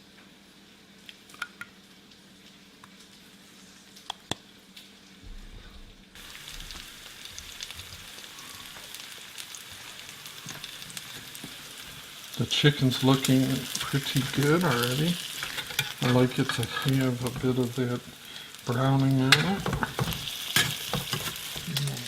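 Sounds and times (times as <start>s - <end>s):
chicken sizzling in a frying pan: 6.2s - 22.0s.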